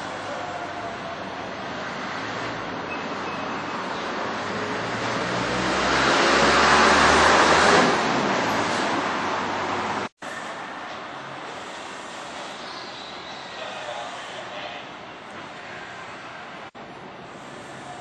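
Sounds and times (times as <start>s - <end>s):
train rushing past: 0.0s - 12.7s.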